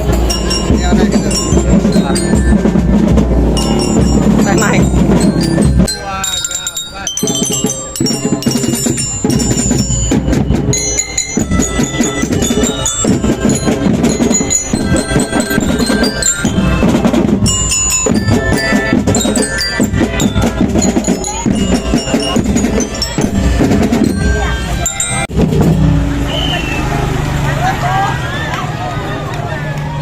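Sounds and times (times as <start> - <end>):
mallet bells melody: 0.0 - 26.4
marching band playing: 0.0 - 27.8.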